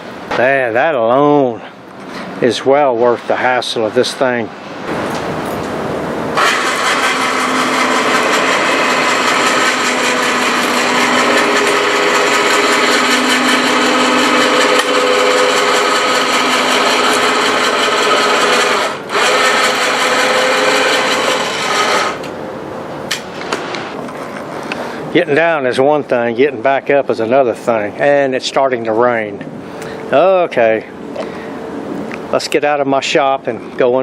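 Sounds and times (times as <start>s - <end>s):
electric motor whirring: 6.4s - 22.3s.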